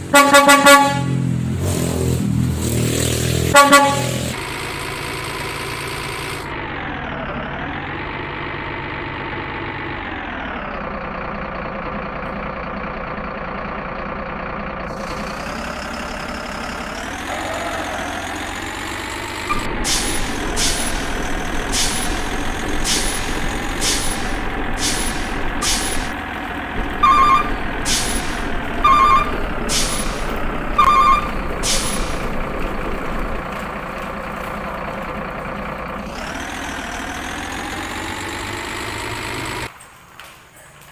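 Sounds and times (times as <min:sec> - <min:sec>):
truck engine running: 0:00.0 - 0:40.9
short sharp hisses: 0:19.5 - 0:26.2, 0:27.8 - 0:28.6, 0:29.7 - 0:30.4, 0:31.6 - 0:32.6
beeps: 0:26.8 - 0:32.4.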